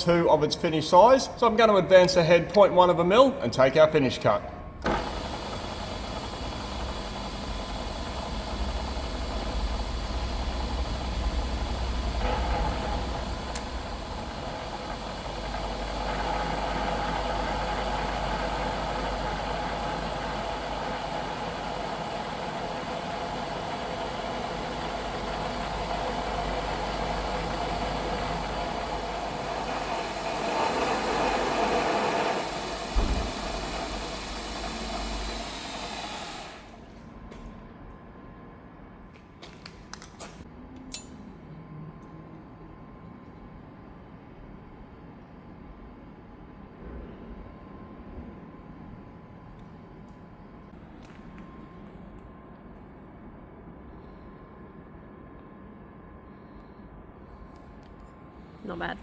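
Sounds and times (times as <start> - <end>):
milling machine spindle running: 4.8 - 36.8
boring tool cutting steel: 27.0 - 36.7
sharp knock: 33.0 - 33.5.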